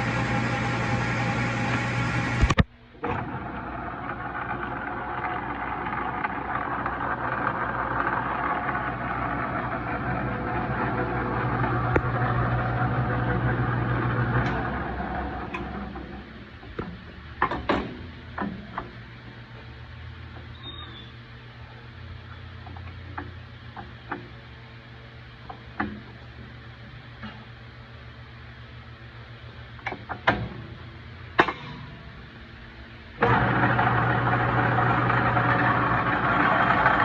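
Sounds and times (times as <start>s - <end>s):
metal lathe humming: 0.0s - 2.4s, 33.2s - 37.0s
sharp clicks and knocks: 15.5s - 19.0s, 25.4s - 26.2s, 31.4s - 31.9s.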